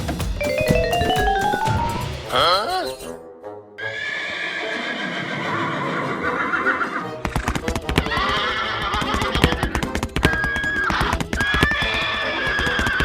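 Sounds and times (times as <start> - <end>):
drawn-out animal-like call: 3.8 - 13.0.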